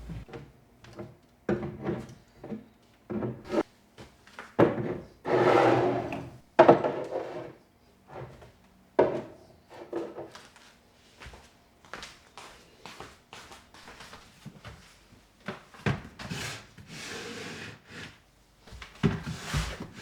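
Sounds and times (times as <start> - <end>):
drawer sliding: 4.7 - 8.3
knocks and clunks of containers: 6.6 - 7.1.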